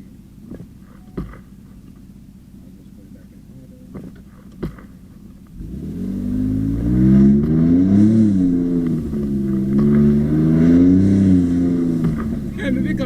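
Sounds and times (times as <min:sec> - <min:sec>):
truck engine accelerating hard: 0:00.0 - 0:13.0.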